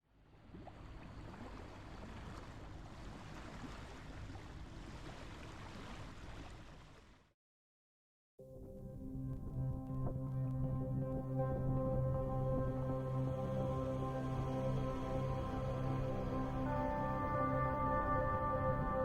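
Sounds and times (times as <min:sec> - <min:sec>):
water and waves washing: 0:00.3 - 0:07.3.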